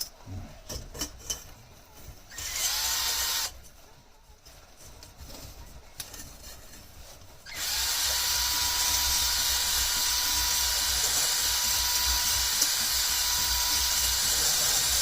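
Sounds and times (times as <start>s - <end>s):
drill whining: 2.3s - 3.6s, 7.5s - 15.0s.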